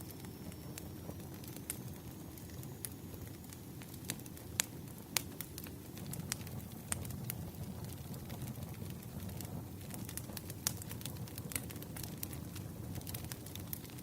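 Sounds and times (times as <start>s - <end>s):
firewood crackling: 0.0s - 14.0s.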